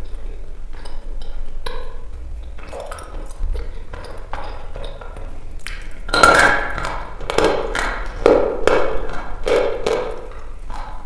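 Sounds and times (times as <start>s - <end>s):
chalk being chewed crunching: 0.8s - 6.1s.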